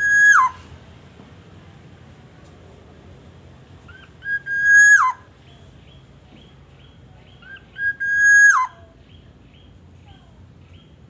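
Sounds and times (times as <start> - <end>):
oriole whistled calls: 0.0 - 0.6, 4.2 - 5.2, 7.4 - 8.8.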